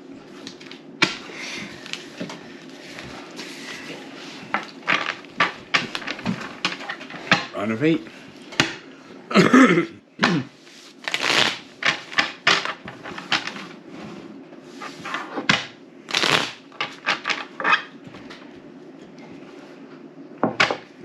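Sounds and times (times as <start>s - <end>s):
playing cards swishing and flicking: 10.7s - 13.4s, 16.1s - 16.6s.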